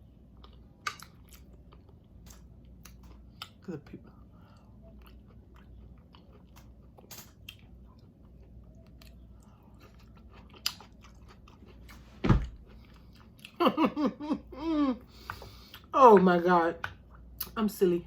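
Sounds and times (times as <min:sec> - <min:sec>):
chewing and crunching food: 0:00.0 - 0:13.8.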